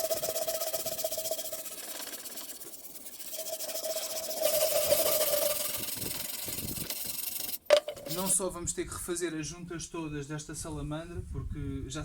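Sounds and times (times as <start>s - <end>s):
wire brush rasping on metal: 0.0s - 8.4s.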